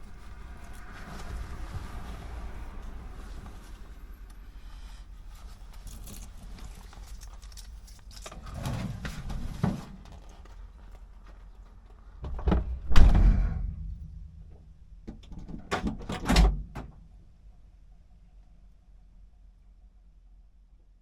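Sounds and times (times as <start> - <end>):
rustling: 0.0 - 15.0
door shutting with heavy thud: 12.2 - 14.0, 15.2 - 17.0.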